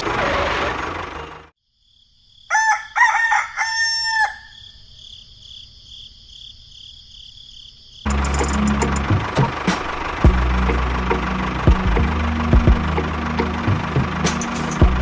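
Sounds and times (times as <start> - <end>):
rooster crowing: 2.5 - 4.8
loud dense noise: 8.1 - 15.0.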